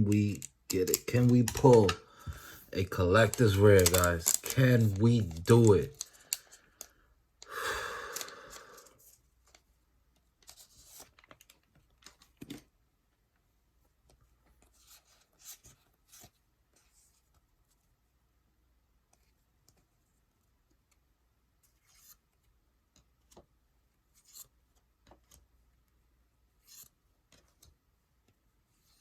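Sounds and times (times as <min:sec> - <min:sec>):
trading cards rustling: 0:00.0 - 0:09.6
foil pack tearing open: 0:03.2 - 0:06.1.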